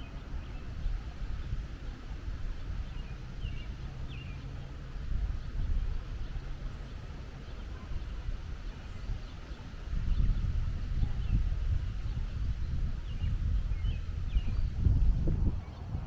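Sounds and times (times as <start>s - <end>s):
steady low rumble: 9.8s - 16.0s.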